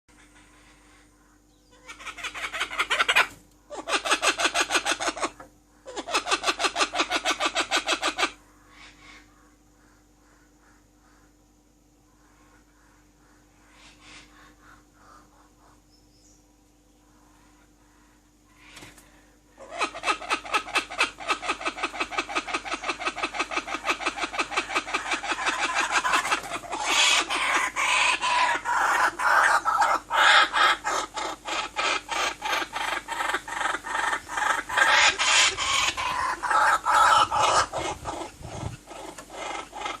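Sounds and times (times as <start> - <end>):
bird calling rapid repeated notes: 19.6 - 40.0.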